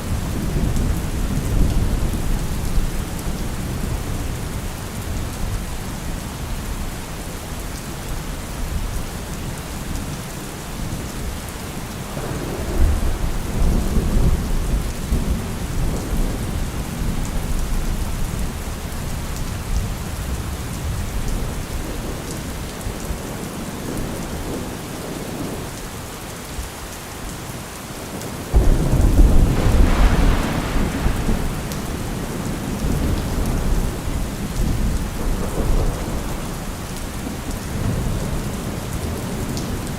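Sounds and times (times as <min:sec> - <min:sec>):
heavy rain falling: 0:00.0 - 0:39.9
deep rumbles: 0:28.6 - 0:33.4.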